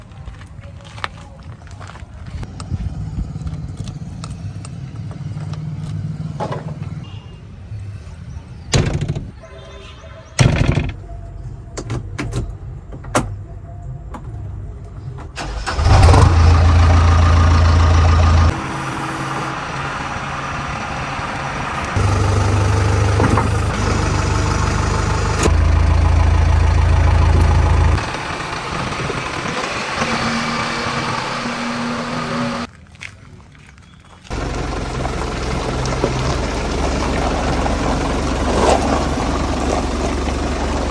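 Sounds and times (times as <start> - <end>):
heavy machinery diesel engines: 15.2 - 32.7, 34.3 - 40.9.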